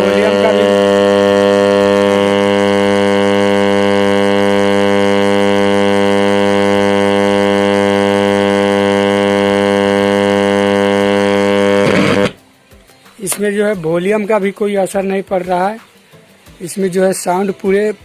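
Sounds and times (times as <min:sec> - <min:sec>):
speaker buzzing hum: 0:00.0 - 0:12.5.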